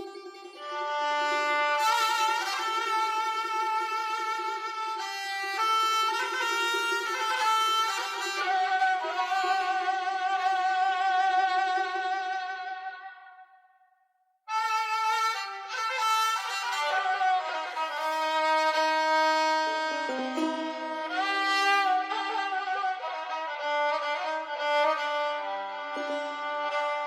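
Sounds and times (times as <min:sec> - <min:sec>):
melody of long held notes: 0:19.7 - 0:22.1.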